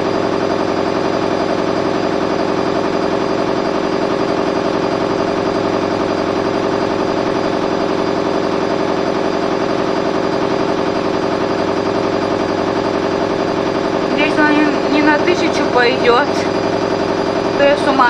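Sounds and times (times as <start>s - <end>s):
washing machine spinning: 0.0s - 18.0s.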